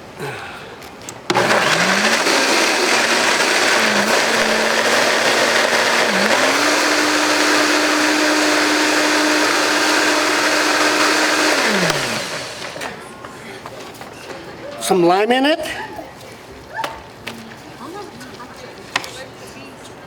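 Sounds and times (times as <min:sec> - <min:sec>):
blender motor running: 0:01.3 - 0:13.0.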